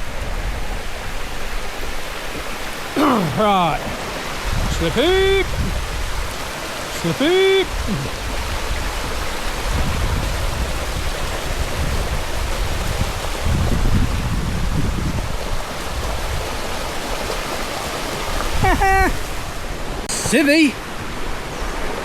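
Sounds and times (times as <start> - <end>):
low water rumbling: 0.0 - 20.1
waterfall rushing over rocks: 0.0 - 22.0
person exclaiming: 3.0 - 4.0, 4.7 - 5.6, 7.0 - 8.2, 18.6 - 19.3.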